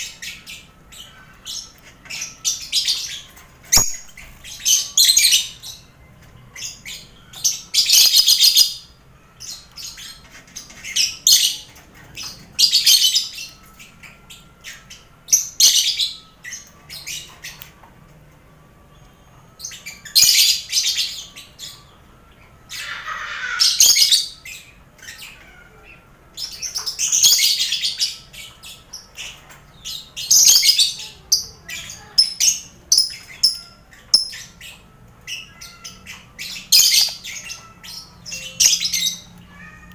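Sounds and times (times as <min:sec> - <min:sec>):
lovebirds shrill chattering: 0:26.4 - 0:39.9.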